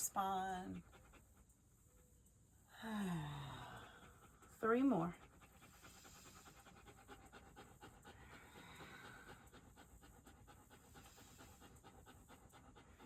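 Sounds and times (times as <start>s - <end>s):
dog panting: 0.0s - 2.7s, 3.8s - 13.0s.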